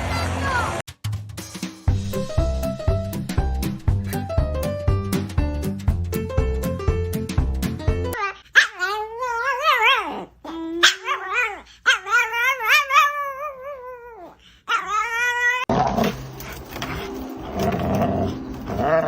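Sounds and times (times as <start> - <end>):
dog howling: 8.8 - 15.7.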